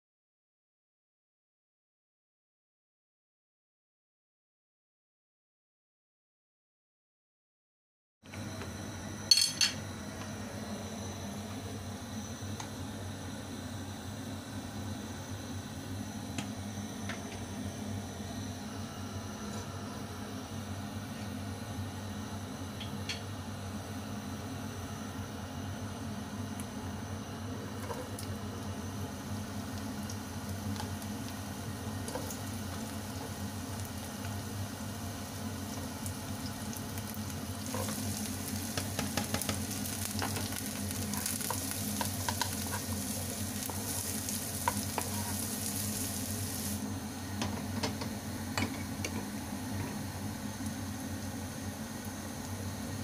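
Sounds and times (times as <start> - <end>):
steady low hum: 8.4 - 53.0
shallots and garlic sizzling in oil: 27.7 - 53.0.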